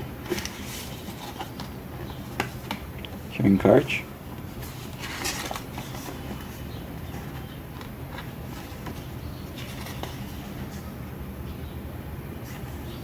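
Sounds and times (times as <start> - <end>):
steady low hum: 0.0 - 13.0
paper rustling and handling: 0.2 - 2.9, 4.5 - 11.0.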